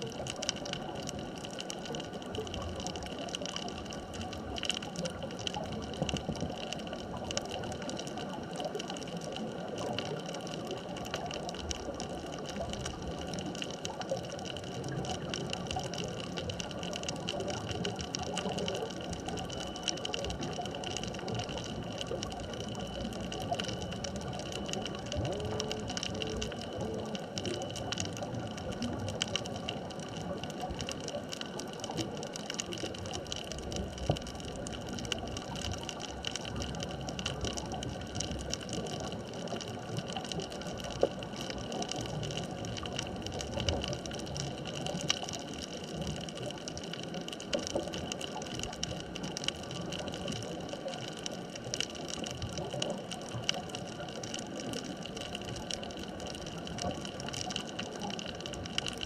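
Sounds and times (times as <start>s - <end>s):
crackling clicks: 0.0s - 59.0s
constant tones: 14.4s - 50.8s.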